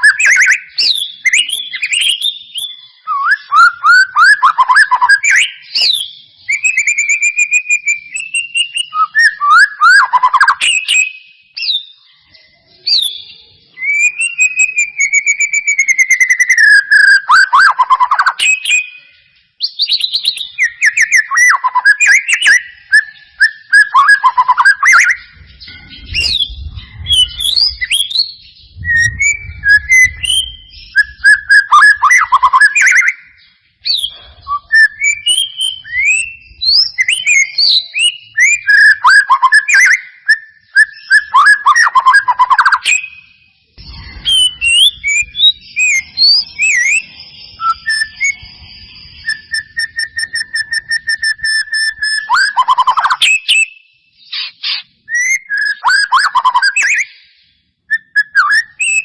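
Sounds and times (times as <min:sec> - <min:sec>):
bird song with whistles and trills: 0:00.0 - 0:59.0
faint low rumble: 0:25.2 - 0:31.3, 0:43.8 - 0:46.2.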